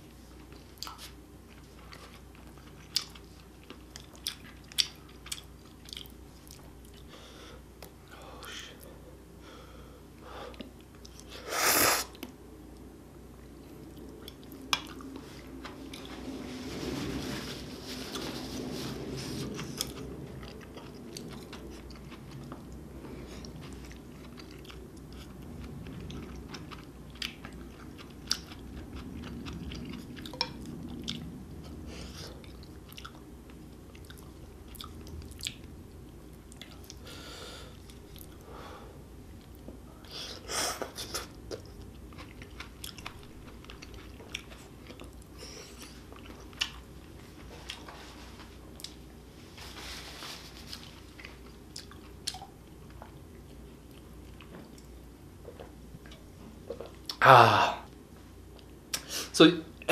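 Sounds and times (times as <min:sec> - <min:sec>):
close chewing with wet mouth sounds: 0:00.3 - 0:07.1, 0:13.6 - 0:16.1, 0:19.0 - 0:37.1, 0:39.3 - 0:47.9, 0:50.7 - 0:57.2.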